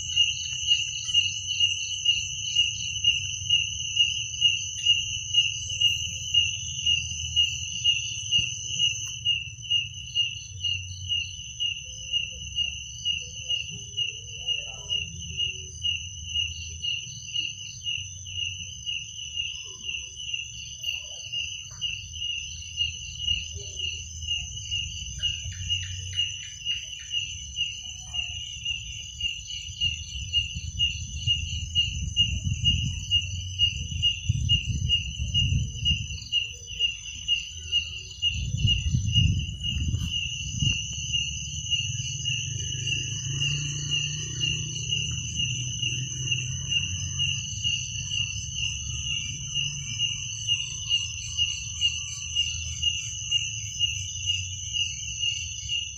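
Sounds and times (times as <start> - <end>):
continuous insect trill: 0.0 - 55.9
cricket chirping: 0.0 - 55.9
low rumble: 38.3 - 49.6.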